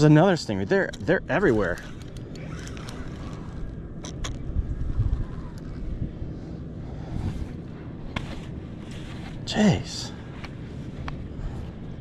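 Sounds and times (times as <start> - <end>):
wind buffeting microphone: 1.4 - 9.4.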